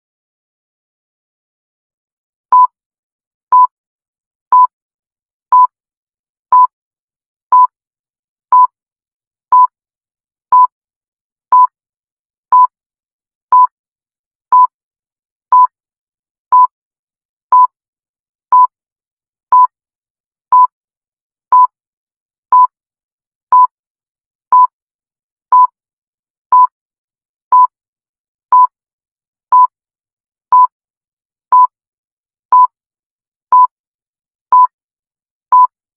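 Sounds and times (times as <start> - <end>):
electronic timer beeps: 2.5 - 2.7, 4.5 - 4.7, 7.5 - 7.7, 8.5 - 8.7, 9.5 - 9.7, 11.5 - 11.7, 12.5 - 12.7, 13.5 - 13.7, 15.5 - 15.7, 17.5 - 17.7, 20.5 - 20.7, 21.5 - 21.7, 22.5 - 22.7, 24.5 - 24.7, 25.5 - 25.7, 26.5 - 26.7, 29.5 - 29.7, 30.5 - 30.7, 34.5 - 34.7.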